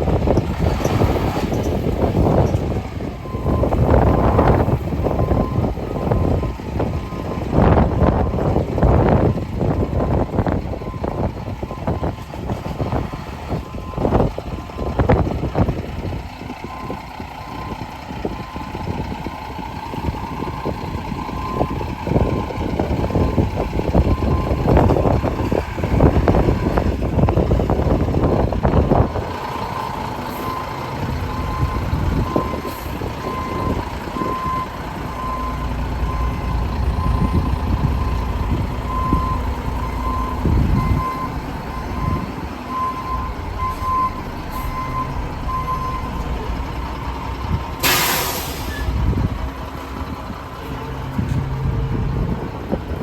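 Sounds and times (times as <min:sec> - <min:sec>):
garbage truck engine rumble: 0:00.0 - 0:53.0
truck backup alarm beeping: 0:00.1 - 0:53.0.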